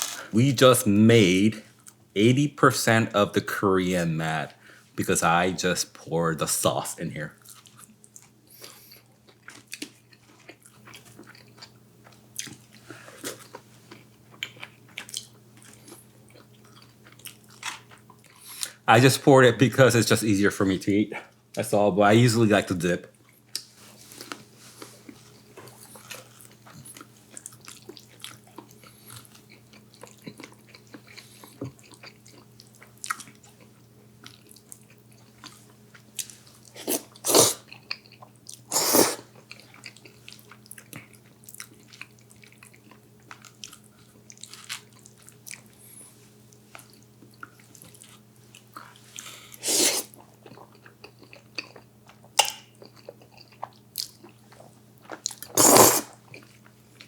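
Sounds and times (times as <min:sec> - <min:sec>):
person chewing and biting: 0:00.0 - 0:00.3, 0:07.4 - 0:18.4, 0:25.0 - 0:33.6, 0:34.2 - 0:45.7, 0:46.8 - 0:57.0
faint steady hum: 0:00.0 - 0:57.0
loud bites or slurps: 0:36.8 - 0:37.6, 0:38.7 - 0:39.3, 0:49.6 - 0:50.2, 0:55.5 - 0:56.2.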